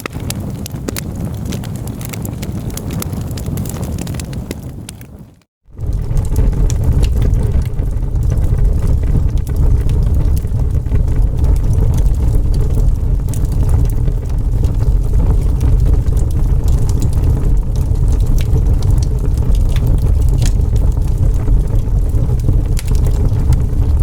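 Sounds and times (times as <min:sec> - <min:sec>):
fire crackling: 0:00.0 - 0:24.0
fire roaring in fireplace: 0:00.0 - 0:24.0.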